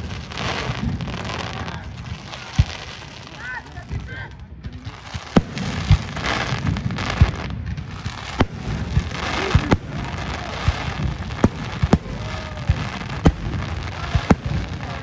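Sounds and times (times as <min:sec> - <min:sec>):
low firework thuds: 0:03.8 - 0:15.0
firework shells bursting: 0:05.3 - 0:15.0.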